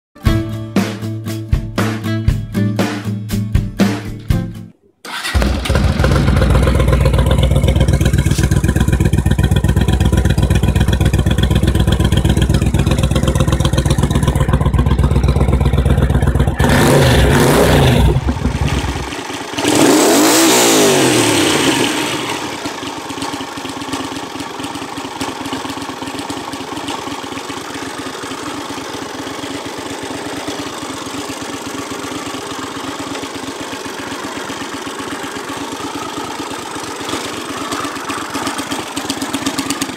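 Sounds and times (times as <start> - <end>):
motorcycle engine and exhaust: 5.0 - 39.9
motorcycle passing by: 5.1 - 22.9, 32.0 - 39.9
engine idling: 5.1 - 39.9.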